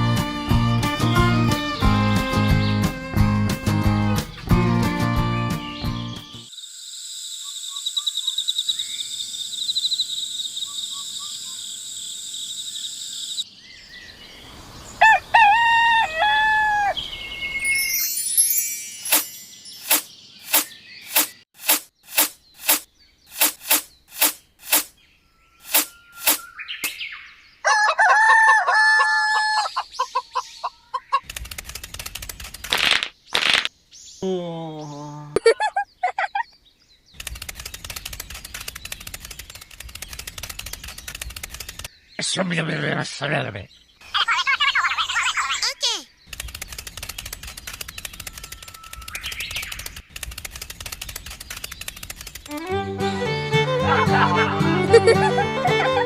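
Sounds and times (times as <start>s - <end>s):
rooster crowing: 15.0s - 17.0s, 27.6s - 29.8s
sharp chirps: 17.6s - 25.0s, 25.6s - 27.2s.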